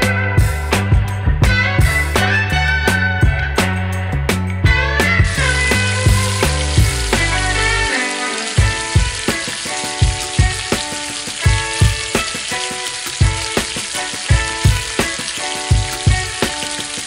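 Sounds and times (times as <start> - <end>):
background music with beat: 0.0 - 17.0
onions sizzling in oil: 5.2 - 17.0.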